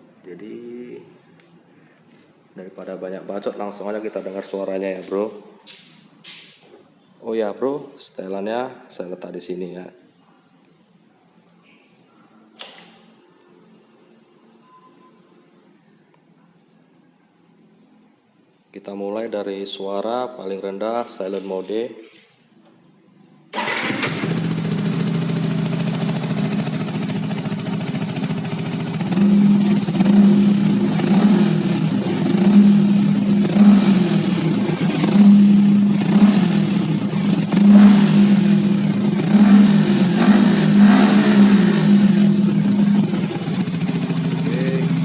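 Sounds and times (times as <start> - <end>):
short throttle revs: 23.6 - 27.2, 28.6 - 45.0
motorcycle engine idling: 23.6 - 45.0.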